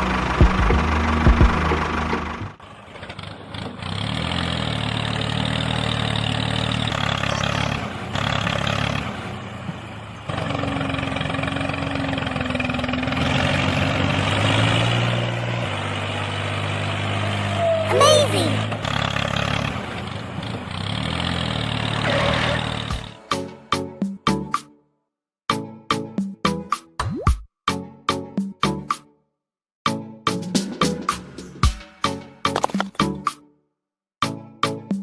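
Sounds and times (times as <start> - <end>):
engine running: 0.0 - 23.3.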